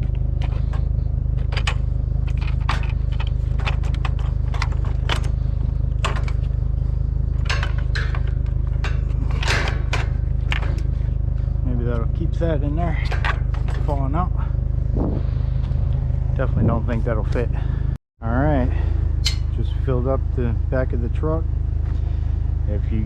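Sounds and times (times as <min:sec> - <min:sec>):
scrap metal clanking and scraping: 0:00.0 - 0:12.0, 0:12.8 - 0:17.7
engine idling: 0:00.0 - 0:23.0.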